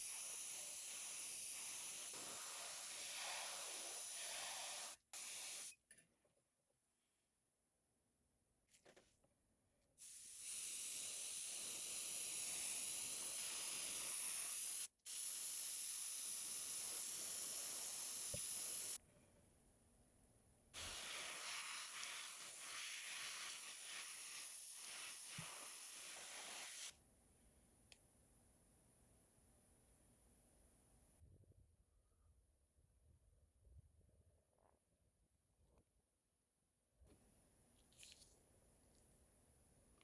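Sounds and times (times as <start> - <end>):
airbrush spraying hiss: 0.0 - 5.8, 10.0 - 19.0, 20.8 - 26.9.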